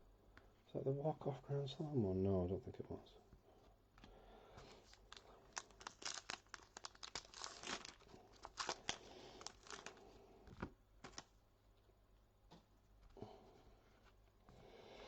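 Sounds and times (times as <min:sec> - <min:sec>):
wrapper crinkling and tearing: 0:04.8 - 0:10.2, 0:11.0 - 0:11.3.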